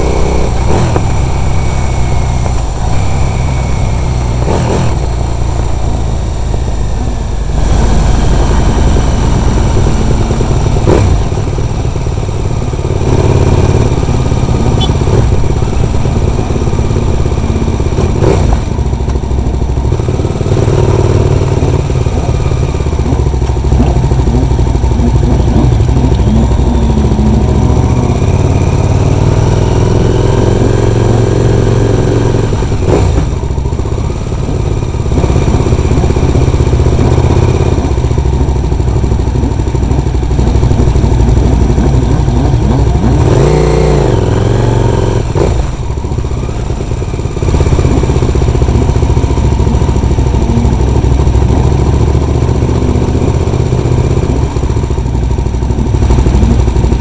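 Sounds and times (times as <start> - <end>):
motorcycle engine running: 0.0 - 57.0
low rumble on microphone: 22.1 - 29.4, 38.4 - 43.3.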